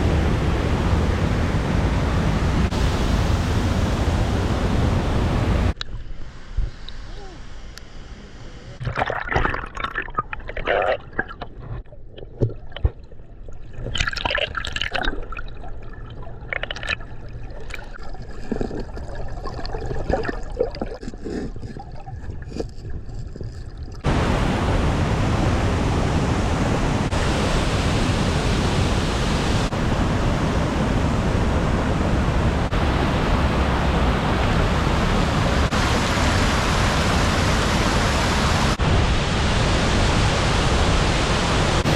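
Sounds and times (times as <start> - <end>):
waterfall rushing: 0.0 - 5.8, 24.0 - 41.9
water splashing and sloshing: 8.8 - 41.9.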